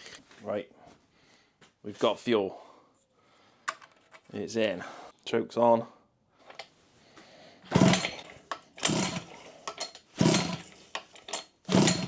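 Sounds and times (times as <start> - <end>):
recoil starter pulls whirring: 7.7 - 12.0.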